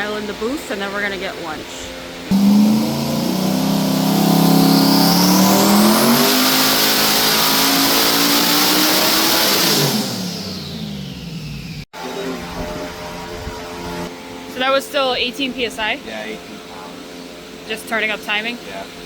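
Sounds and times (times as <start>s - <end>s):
high turbo whine: 1.9s - 17.7s
car engine revving at full throttle: 2.3s - 13.1s.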